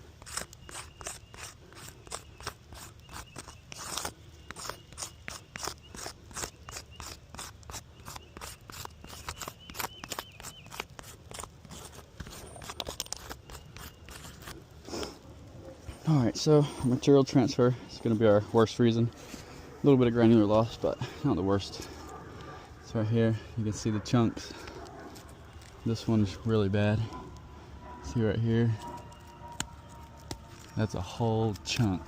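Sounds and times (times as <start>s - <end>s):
roof shingles crunching and scraping: 0.0s - 16.0s.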